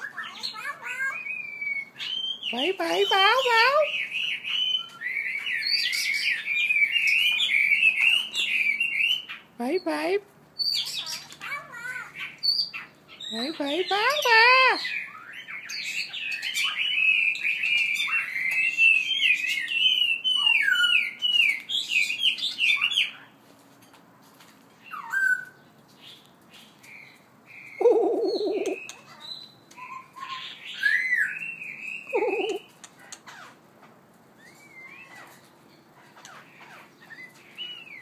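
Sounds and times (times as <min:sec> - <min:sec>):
songbird warbling: 0:26.9 - 0:33.5.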